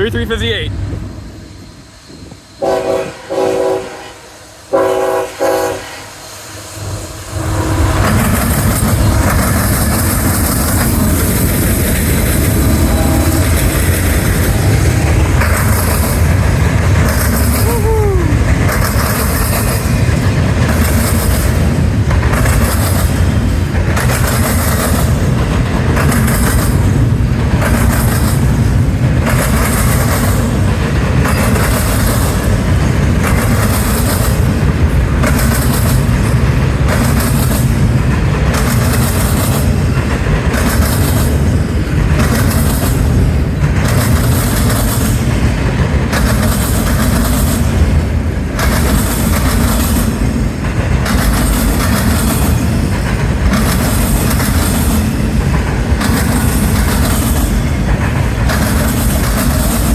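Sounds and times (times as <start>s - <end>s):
freight train wheels rumbling: 0.0s - 59.9s
train wheel squeal: 1.0s - 21.7s, 29.2s - 37.7s, 51.0s - 59.9s.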